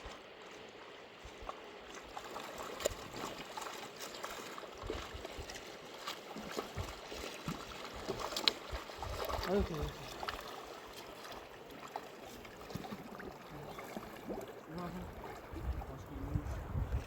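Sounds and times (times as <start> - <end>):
river water running: 0.0 - 17.0
small water splashes: 0.0 - 17.0.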